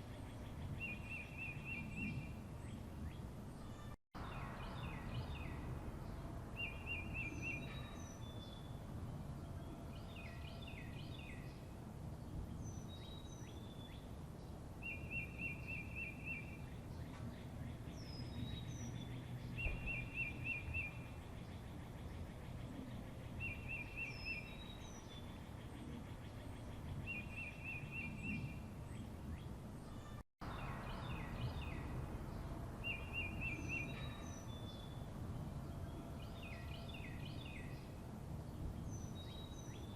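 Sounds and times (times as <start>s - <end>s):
birds chirping: 0.0s - 39.9s
steady low rumble: 30.4s - 36.0s.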